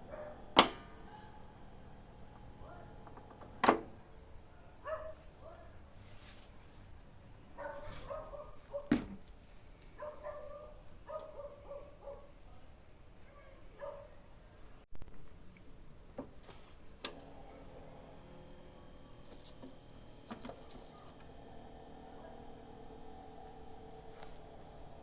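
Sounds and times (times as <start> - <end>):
dog barking: 0.1 - 0.5, 2.6 - 3.0, 4.8 - 5.8, 7.6 - 8.9, 10.0 - 12.4, 13.7 - 14.2.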